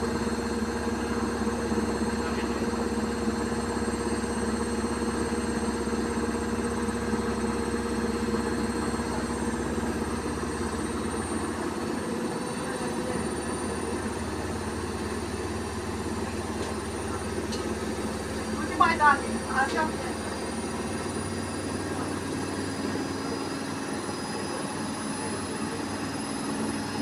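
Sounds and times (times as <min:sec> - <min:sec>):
washing machine spinning: 0:00.0 - 0:27.0.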